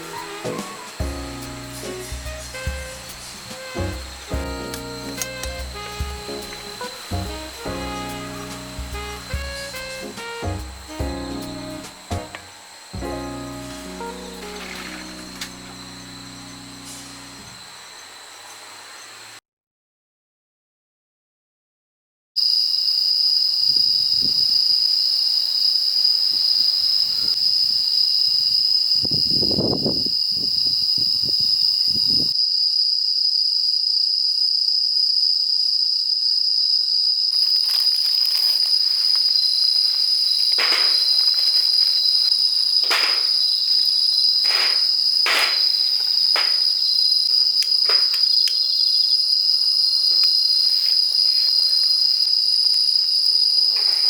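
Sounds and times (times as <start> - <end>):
night insects trilling: 0.0 - 19.4, 22.4 - 54.0
handling rustles: 13.6 - 16.0, 37.4 - 48.6, 50.1 - 52.2, 53.3 - 54.0.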